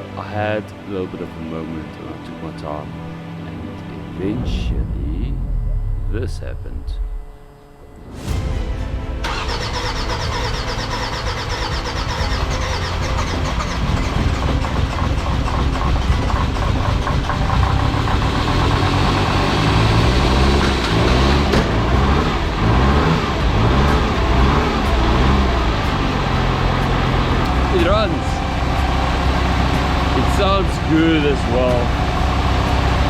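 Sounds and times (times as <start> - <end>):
diesel engine cranking and running: 9.2 - 33.0.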